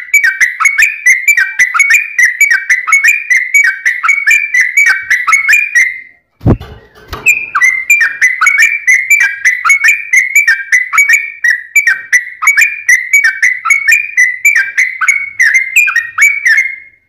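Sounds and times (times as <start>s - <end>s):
bird singing whistled chatter: 0.0s - 17.0s
low thud: 6.4s - 7.4s.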